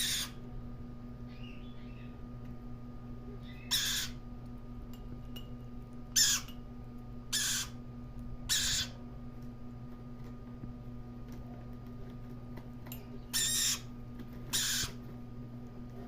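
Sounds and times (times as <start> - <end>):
parrot chick harsh calls: 0.0 - 0.4, 3.4 - 4.2, 6.2 - 6.5, 7.3 - 7.8, 8.5 - 9.0, 13.3 - 13.9, 14.5 - 15.0
steady low hum: 0.0 - 16.0.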